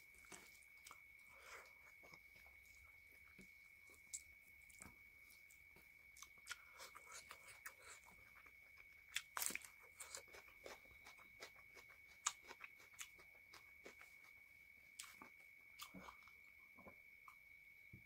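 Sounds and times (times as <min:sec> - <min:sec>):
faint high whine: 0:00.0 - 0:18.0
chewing with wet mouth clicks: 0:06.2 - 0:14.4, 0:15.0 - 0:17.4.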